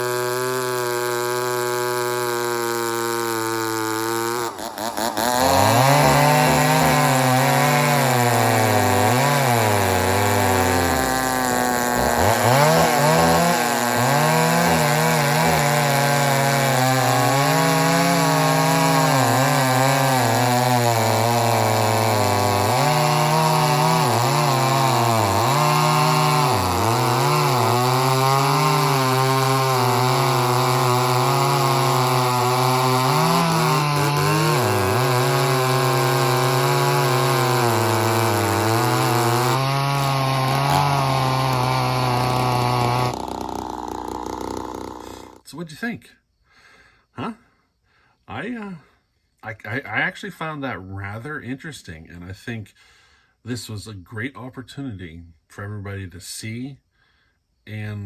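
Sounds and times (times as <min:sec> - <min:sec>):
chainsaw cutting wood: 0:00.0 - 0:45.5
chainsaw rattle: 0:00.0 - 0:45.5.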